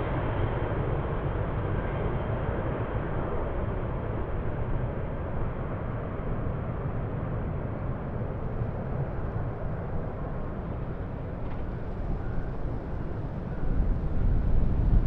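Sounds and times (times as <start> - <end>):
wind buffeting microphone: 7.0 - 15.0.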